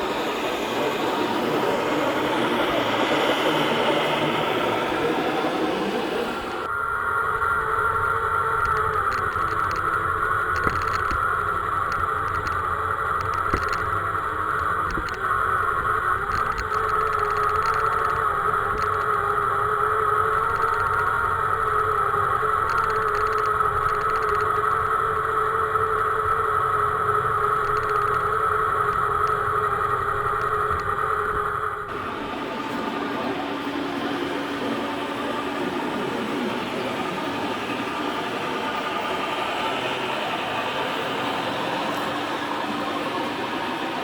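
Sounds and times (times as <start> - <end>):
model vehicle motor whine: 7.6 - 32.4.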